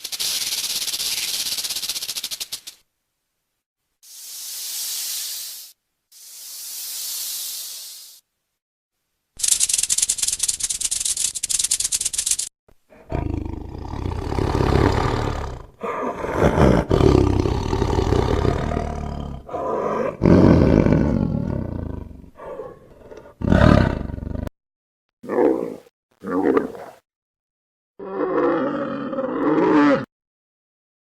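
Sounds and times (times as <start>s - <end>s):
big cat roaring and growling: 12.9s - 24.5s, 25.3s - 27.0s, 28.0s - 30.1s.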